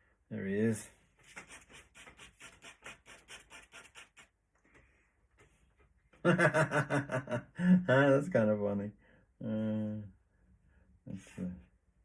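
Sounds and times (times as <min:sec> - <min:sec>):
pen scratching on paper: 0:01.2 - 0:04.3.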